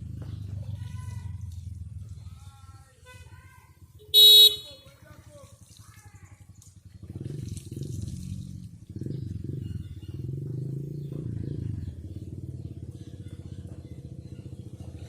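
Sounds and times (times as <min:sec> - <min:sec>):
engine running: 0:00.0 - 0:02.4, 0:06.4 - 0:15.0.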